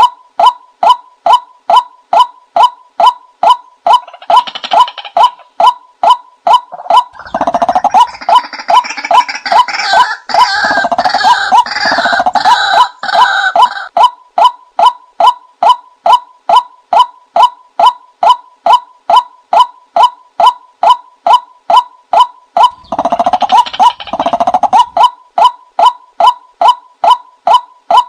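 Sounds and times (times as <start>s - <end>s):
repeating bird-like call note: 0.0s - 28.0s
harsh raspy squawking: 6.6s - 13.9s, 22.6s - 25.2s.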